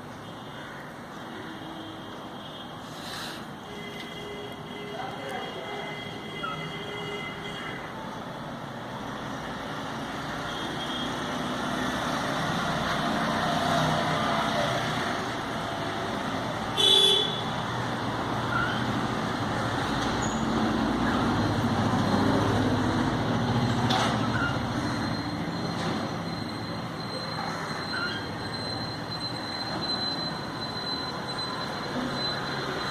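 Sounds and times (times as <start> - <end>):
rumbling vehicle noise: 7.9 - 32.9.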